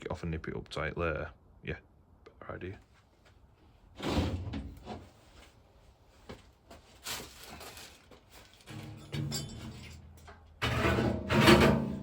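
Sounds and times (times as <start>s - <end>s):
metal parts knocking and scraping: 8.6s - 12.0s.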